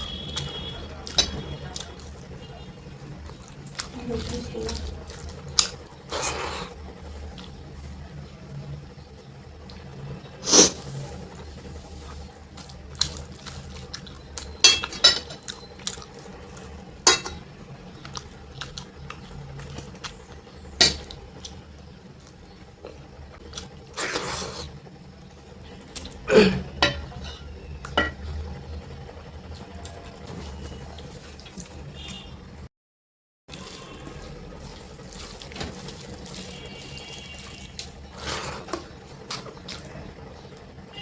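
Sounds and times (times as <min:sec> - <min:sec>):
scraping on plate: 0:38.1 - 0:38.9.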